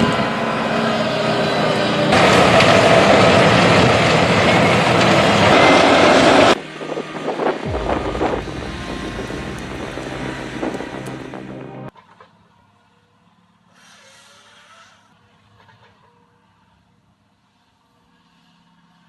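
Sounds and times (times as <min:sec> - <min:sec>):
industrial wood grinder running: 0:00.1 - 0:11.9
low machine rumble: 0:06.4 - 0:11.9.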